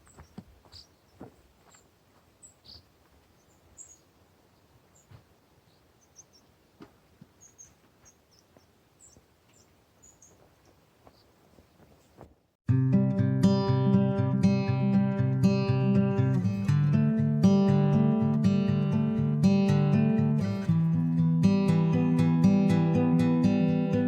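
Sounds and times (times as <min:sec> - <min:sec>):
faint bird chirps: 0:00.0 - 0:06.6, 0:07.3 - 0:12.2.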